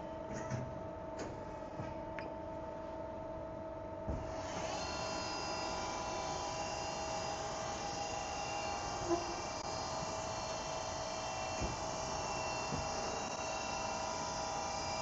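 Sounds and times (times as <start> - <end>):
lathe electrical hum: 0.0 - 15.0
motor whine: 4.2 - 15.0.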